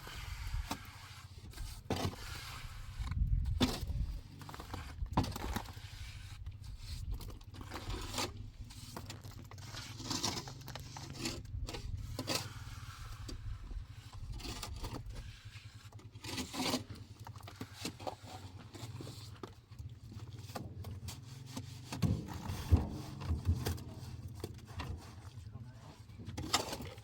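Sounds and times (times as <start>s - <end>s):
hand tool scraping rough surface: 0.0s - 27.0s.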